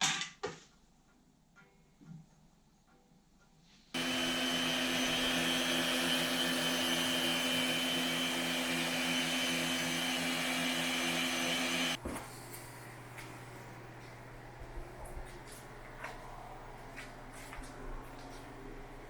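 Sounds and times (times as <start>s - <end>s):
power tool motor whining: 4.0s - 12.0s.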